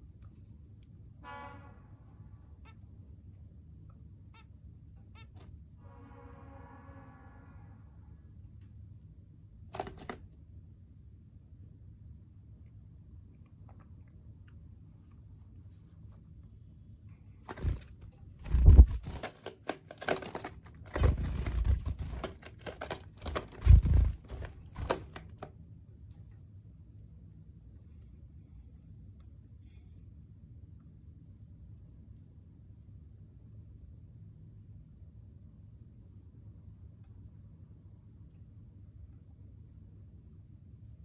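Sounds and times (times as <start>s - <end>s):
heavy bumps: 17.5s - 25.5s
rustling and crinkling: 17.5s - 25.5s.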